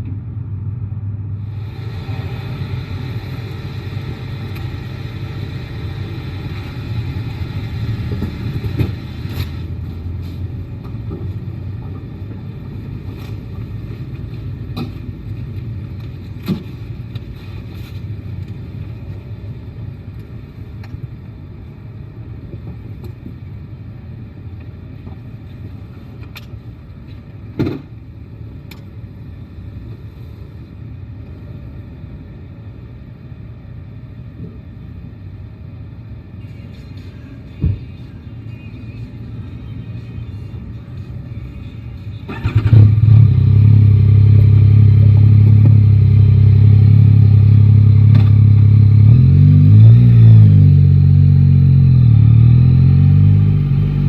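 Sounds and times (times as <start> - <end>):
road noise: 0.0 - 54.0
motorcycle engine running: 42.3 - 49.4.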